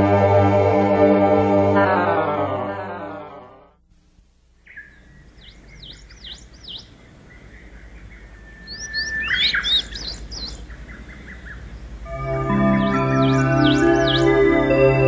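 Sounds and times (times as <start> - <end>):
birds singing: 4.6 - 15.0.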